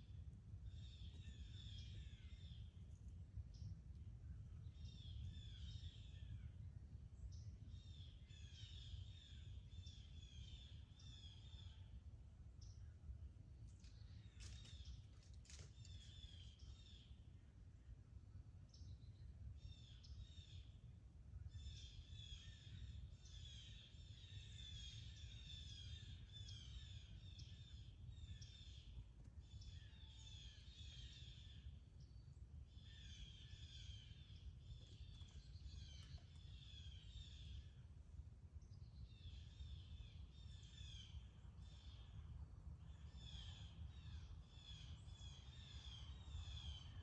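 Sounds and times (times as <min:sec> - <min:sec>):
low steady rumble: 0:00.0 - 0:47.0
small birds twittering: 0:21.6 - 0:37.8.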